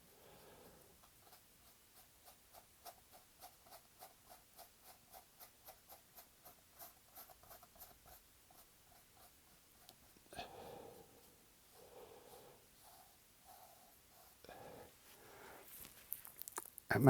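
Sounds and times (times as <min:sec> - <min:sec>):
paintbrush scratching on canvas: 0:01.0 - 0:10.2, 0:11.1 - 0:14.4.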